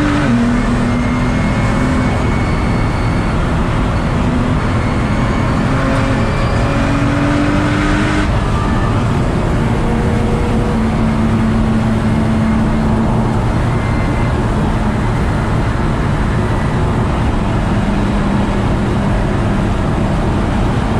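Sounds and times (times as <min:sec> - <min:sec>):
car engine running: 0:00.0 - 0:20.9
road and tyre noise: 0:00.0 - 0:20.9.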